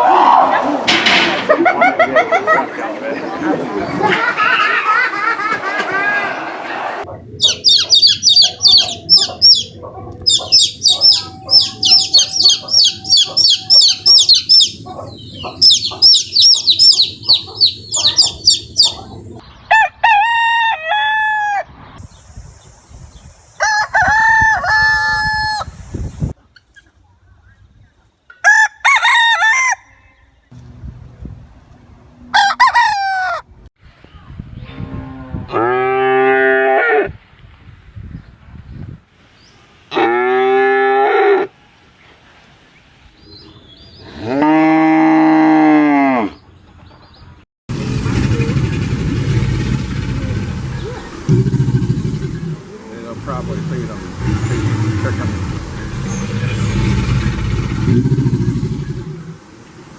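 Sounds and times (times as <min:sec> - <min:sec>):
chickens calling rapidly: 0:00.0 - 0:21.7, 0:32.4 - 0:33.5
roosters crowing: 0:04.1 - 0:21.8, 0:23.6 - 0:25.8, 0:28.4 - 0:30.4, 0:32.2 - 0:33.7.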